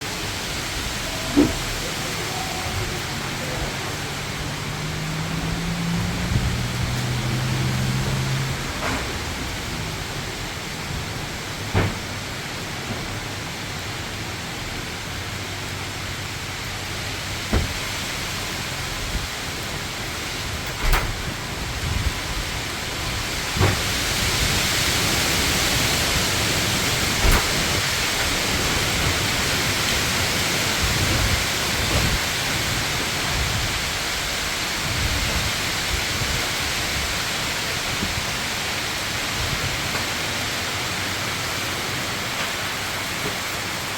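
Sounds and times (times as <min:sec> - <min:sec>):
wind and rain hissing: 0:00.0 - 0:43.9
wind gusts rumbling: 0:00.0 - 0:43.9
sharp knocks: 0:17.5 - 0:17.8.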